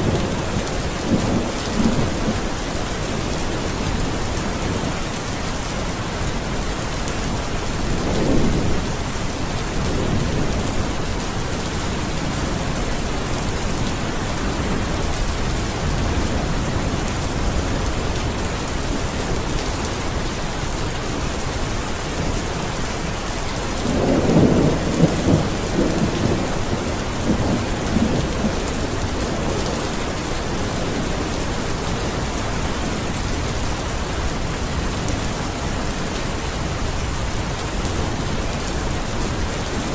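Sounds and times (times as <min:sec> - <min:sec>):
rain falling: 0:00.0 - 0:39.9
thunder rumbling: 0:23.7 - 0:35.1.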